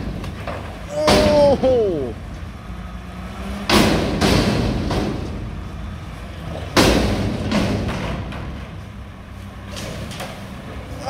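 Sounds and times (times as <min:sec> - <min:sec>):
garbage truck metal bangs: 0:00.0 - 0:01.7, 0:03.6 - 0:08.8
truck engine low rumble: 0:00.0 - 0:11.0.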